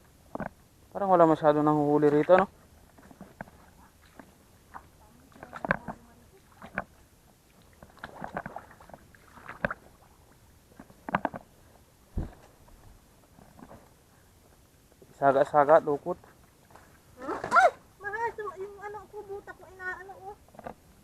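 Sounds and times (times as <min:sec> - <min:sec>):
water splashes: 0:01.2 - 0:12.4
hands squelching in wet mud: 0:07.6 - 0:10.2
dull low thump: 0:12.1 - 0:12.5.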